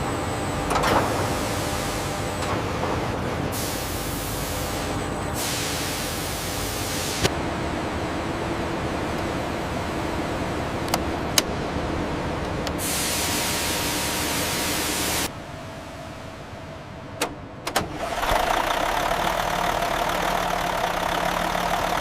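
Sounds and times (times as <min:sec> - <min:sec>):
excavator diesel engine starting: 0:00.0 - 0:15.3, 0:15.9 - 0:22.0
loud hiss: 0:03.6 - 0:07.3, 0:12.8 - 0:15.3.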